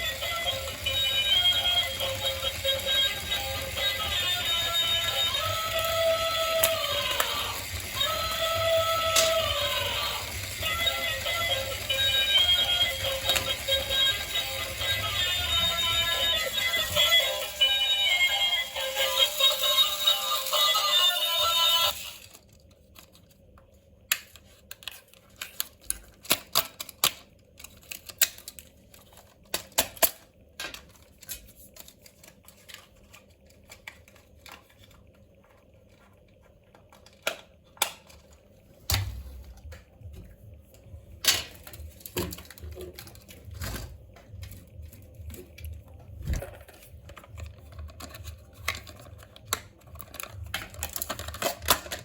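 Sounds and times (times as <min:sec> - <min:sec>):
hands handling toy and packaging: 0:19.1 - 0:38.6, 0:41.2 - 0:43.6, 0:44.2 - 0:52.0.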